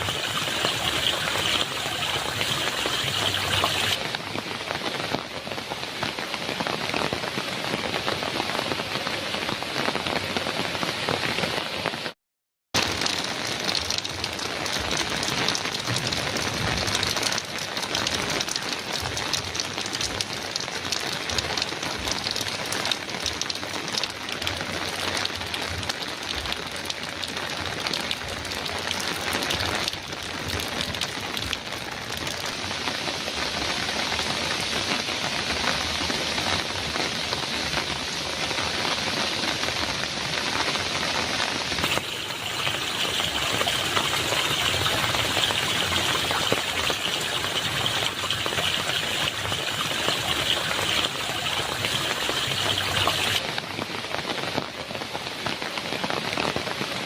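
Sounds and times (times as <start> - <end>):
heavy rain on a metal roof: 0.0 - 12.2, 12.8 - 57.0.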